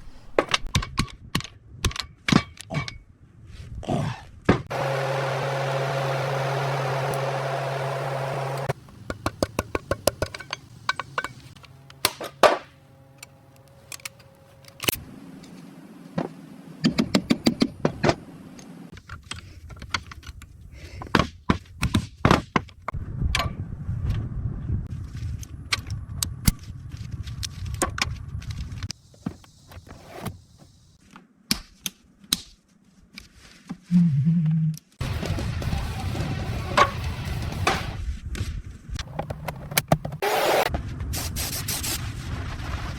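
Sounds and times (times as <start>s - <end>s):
steady machine hum: 4.7s - 8.8s.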